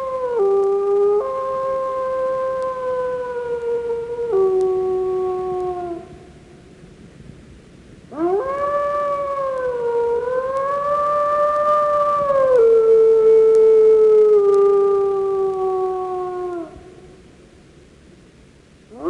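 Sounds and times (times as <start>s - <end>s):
wolf howling: 0.0s - 6.1s, 8.1s - 16.8s.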